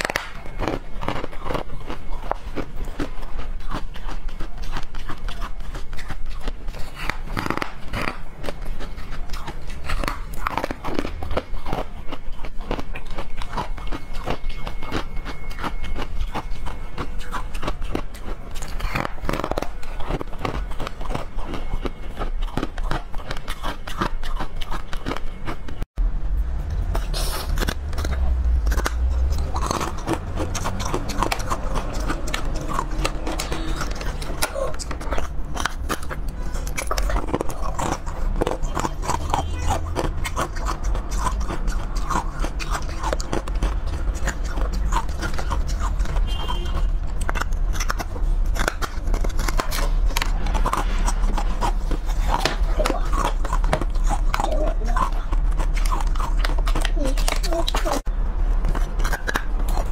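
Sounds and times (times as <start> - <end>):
crunching frozen dessert bars: 0.0 - 25.9, 26.7 - 59.9
wet chewing: 0.0 - 25.9, 26.6 - 59.9.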